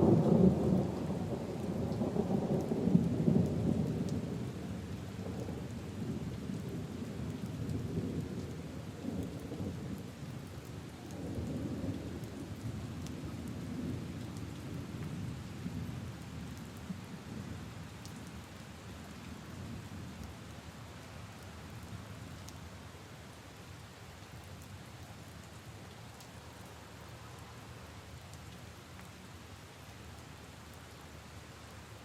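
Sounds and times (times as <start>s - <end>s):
low rumble of thunder: 0.0s - 17.7s
rain on puddles and leaves: 0.0s - 32.0s
raindrop ticks: 17.9s - 18.4s, 20.1s - 22.7s.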